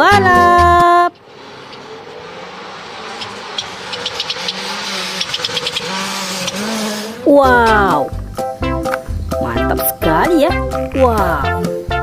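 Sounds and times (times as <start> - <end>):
car engine running: 0.0 - 12.0
sharp ticks: 3.1 - 6.7.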